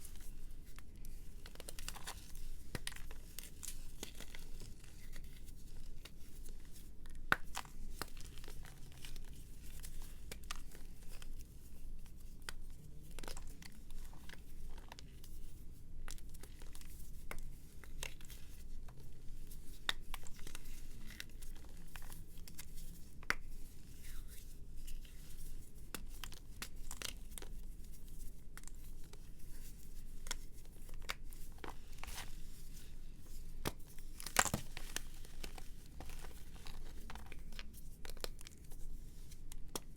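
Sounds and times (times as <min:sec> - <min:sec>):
dry material crumbling by hand: 0:29.6 - 0:39.9.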